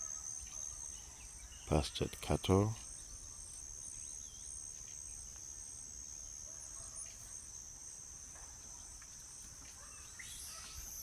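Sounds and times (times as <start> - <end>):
insects droning: 0.0 - 11.0
faint bird chirps: 9.6 - 11.0.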